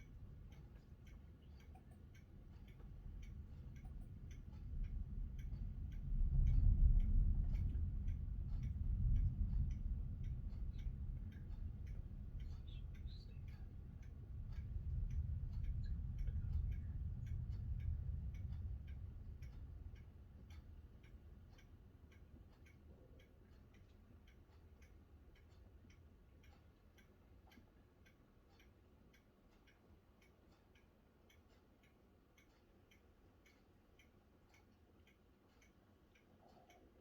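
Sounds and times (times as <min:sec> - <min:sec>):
light regular ticking: 0:00.0 - 0:37.0
rolling thunder: 0:05.2 - 0:12.3.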